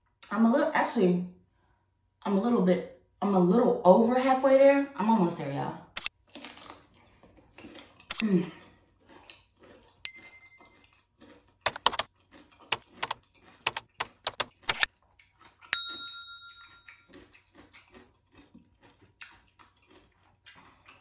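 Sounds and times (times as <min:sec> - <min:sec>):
cucumber being bitten and chewed: 0:06.0 - 0:10.0, 0:10.6 - 0:15.8, 0:16.5 - 0:21.0
bright bell-like chime: 0:10.1 - 0:10.8, 0:15.8 - 0:17.0.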